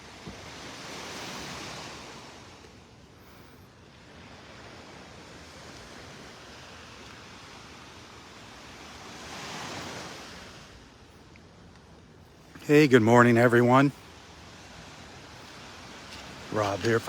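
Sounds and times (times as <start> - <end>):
surf washing onto beach: 0.0 - 2.9, 3.9 - 11.0, 12.4 - 17.0.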